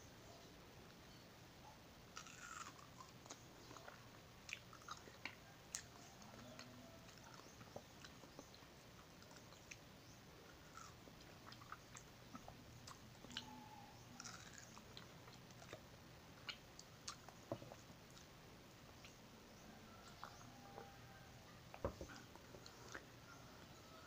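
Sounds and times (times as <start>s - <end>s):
soft wet chewing: 2.1s - 24.0s.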